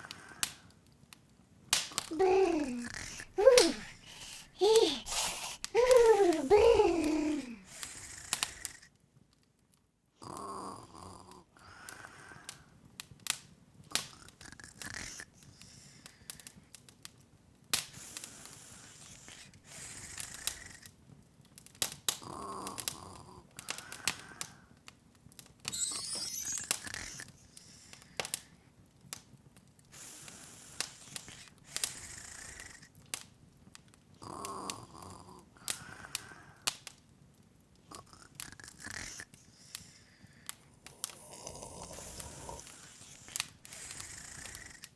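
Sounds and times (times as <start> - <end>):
fire crackling and popping: 0.0 - 9.9, 11.9 - 44.9
low hiss: 1.8 - 8.8.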